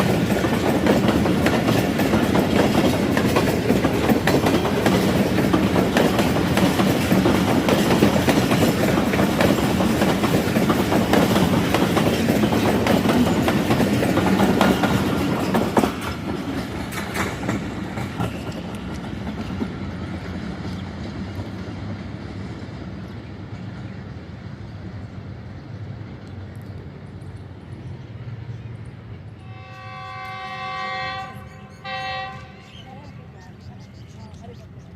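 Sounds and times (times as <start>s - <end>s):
train wheels clattering over rail joints: 0.0s - 23.9s.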